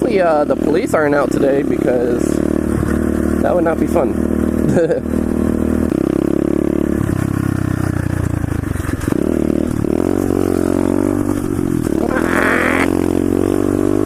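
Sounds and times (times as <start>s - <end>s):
motorbike engine revving: 9.0s - 14.0s.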